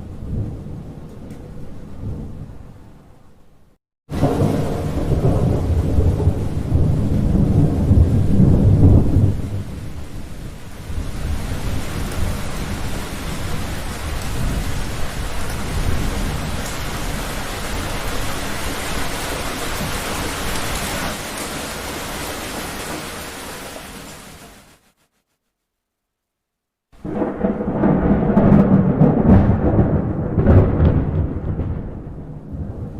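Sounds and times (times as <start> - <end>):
deep roll of thunder: 4.1 - 20.6, 27.0 - 32.9
heavy rain hissing: 4.1 - 25.0.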